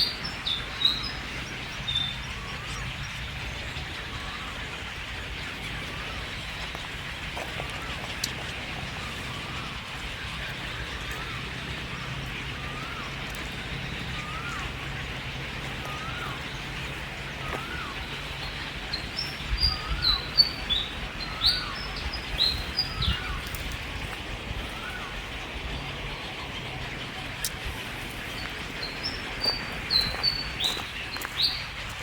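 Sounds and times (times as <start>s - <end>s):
high down-sweeping bird chirps: 7.7s - 32.0s.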